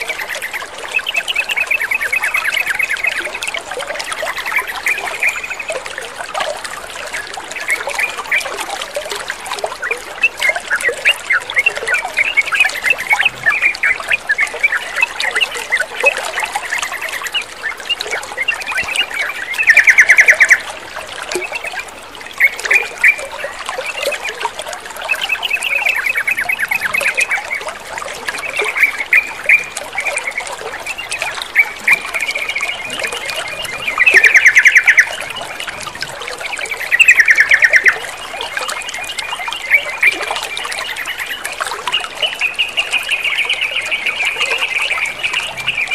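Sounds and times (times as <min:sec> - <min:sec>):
trickle of running water: 0:00.0 - 0:45.9
birds chattering: 0:28.4 - 0:40.1.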